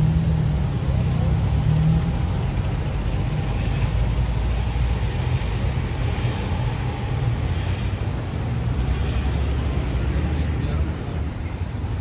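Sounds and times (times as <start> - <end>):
tyre hiss of passing vehicles: 0.0 - 12.0
vehicle engine rumble: 0.0 - 12.0.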